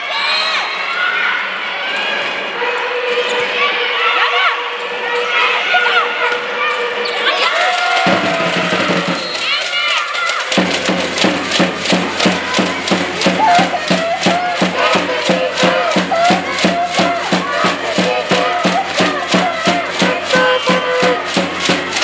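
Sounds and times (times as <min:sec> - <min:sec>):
group of voices chanting: 0:01.4 - 0:22.0
fast even drum beat: 0:07.9 - 0:22.0.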